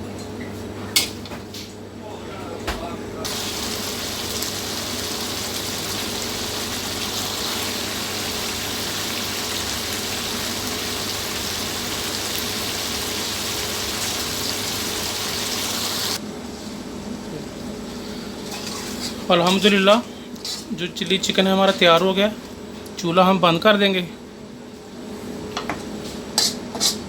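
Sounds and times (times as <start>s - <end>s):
chicken sizzling in a pan: 3.3s - 16.2s.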